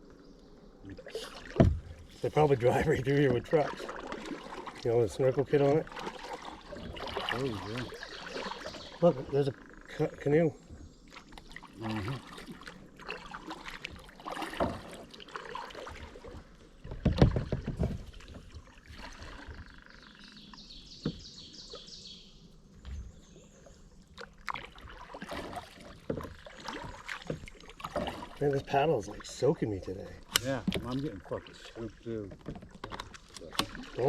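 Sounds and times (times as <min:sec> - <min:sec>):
paddle splashing in water: 0:00.9 - 0:10.2, 0:10.8 - 0:22.1, 0:23.0 - 0:34.0
heavy knock and splash: 0:01.3 - 0:08.7, 0:11.8 - 0:19.6, 0:24.5 - 0:28.8.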